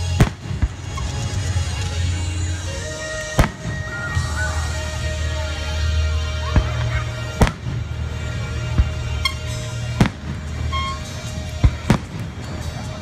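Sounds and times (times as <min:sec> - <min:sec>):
firework shells bursting: 0:03.3 - 0:04.2, 0:08.6 - 0:13.0.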